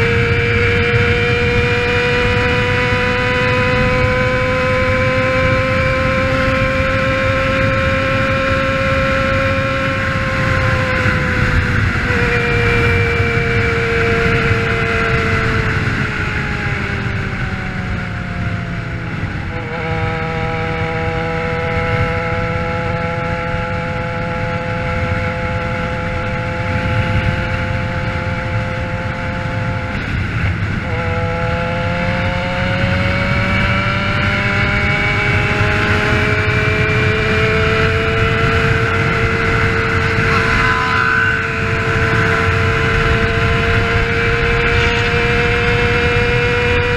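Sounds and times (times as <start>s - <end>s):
low wind rumble: 0.0s - 46.9s
motorcycle engine running: 0.0s - 46.9s.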